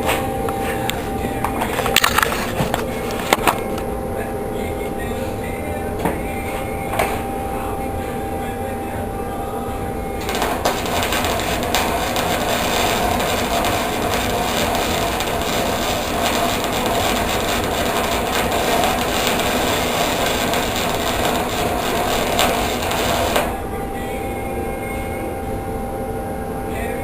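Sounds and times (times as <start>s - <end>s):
arc welding crackling hiss: 10.2s - 23.6s.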